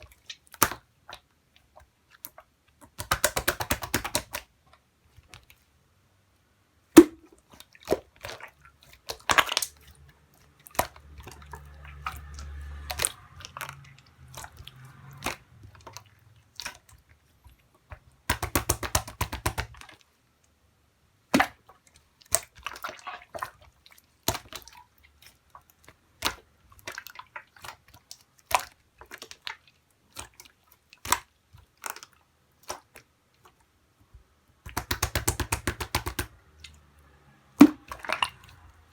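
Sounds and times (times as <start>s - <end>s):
slime clicking and popping: 2.9s - 4.4s, 18.3s - 19.9s, 34.7s - 36.4s.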